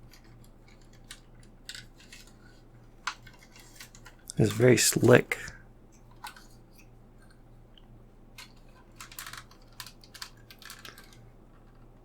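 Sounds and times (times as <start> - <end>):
small clicks and taps: 6.0 - 11.9.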